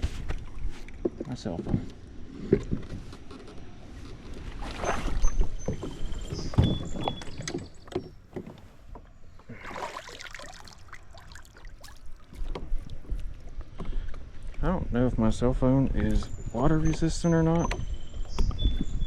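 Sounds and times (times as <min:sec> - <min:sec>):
water sloshing: 0:03.6 - 0:14.6.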